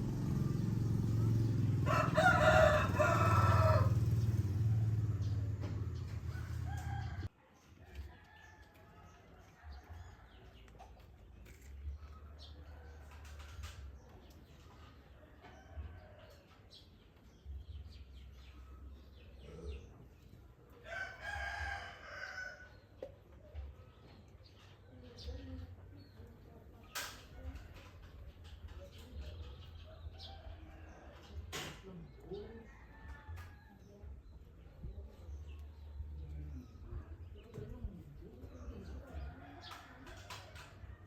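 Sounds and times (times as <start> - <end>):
rooster crowing: 1.6 - 7.3, 20.9 - 22.7.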